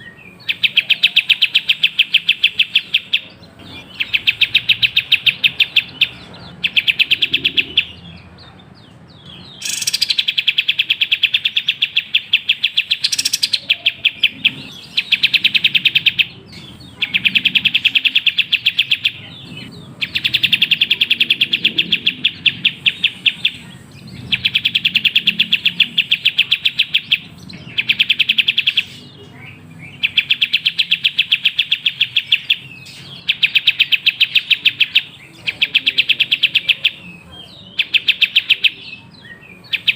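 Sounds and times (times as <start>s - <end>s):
bird rapid-fire chirps: 0.0s - 39.9s.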